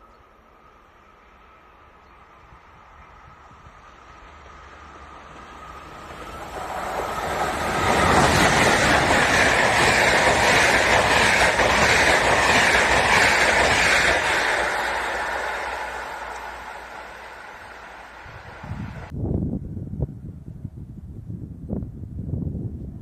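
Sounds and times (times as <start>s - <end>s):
train wheels rumbling on rail: 0.8s - 19.2s.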